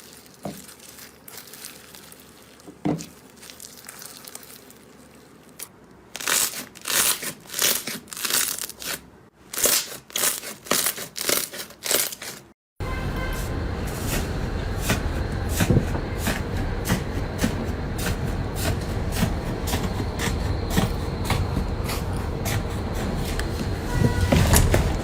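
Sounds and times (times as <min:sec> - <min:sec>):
slime squeezes: 0:00.0 - 0:12.3
slime crackling and crinkling: 0:00.0 - 0:12.5.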